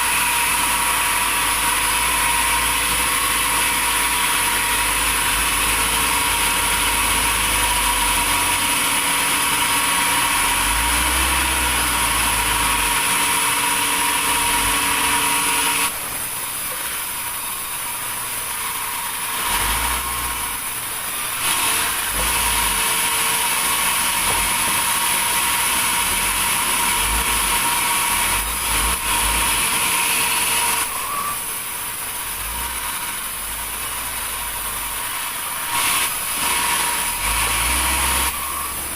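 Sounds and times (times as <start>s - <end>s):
sawmill machinery whining: 0.0s - 38.9s.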